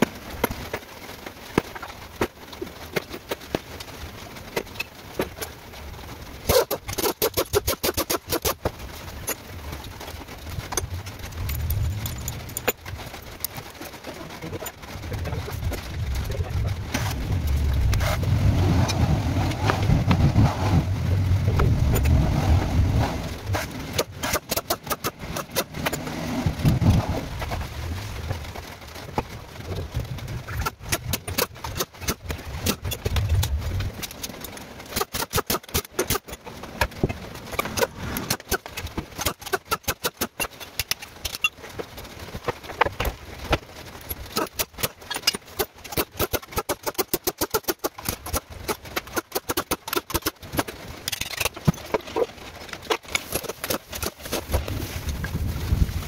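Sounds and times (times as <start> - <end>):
sharp clicks and knocks: 6.4 - 20.8, 23.4 - 27.7, 29.0 - 55.4
car engine rumbling: 8.6 - 35.0, 50.0 - 56.0.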